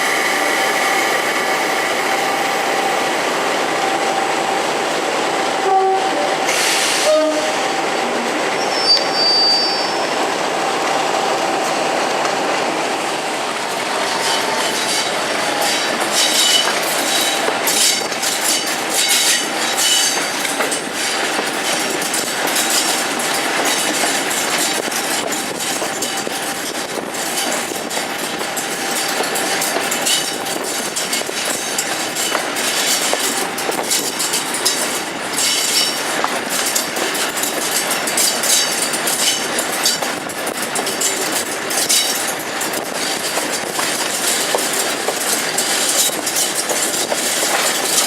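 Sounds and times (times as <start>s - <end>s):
diesel train rumble: 0.0s - 48.0s
high wheel squeal: 8.6s - 10.1s
wheels clicking over rail joints: 13.4s - 48.0s.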